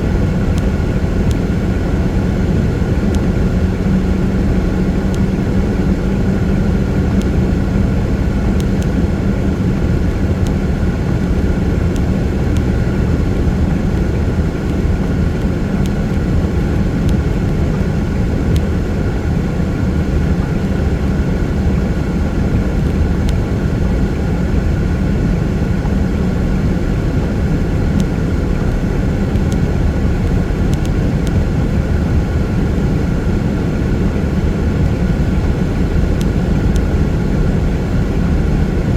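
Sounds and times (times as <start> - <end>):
car engine and tyres on wet road: 0.0 - 38.9
faint clicks: 11.8 - 17.6, 27.9 - 31.5.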